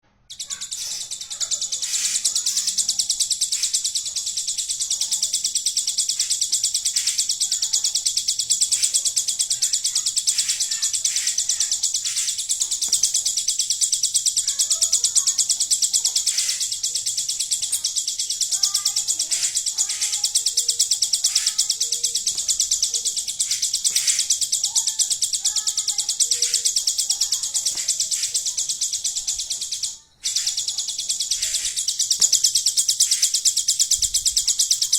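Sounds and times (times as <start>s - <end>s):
bird chirps and twitters: 0.2s - 34.9s
bird buzzing trill: 0.3s - 34.9s.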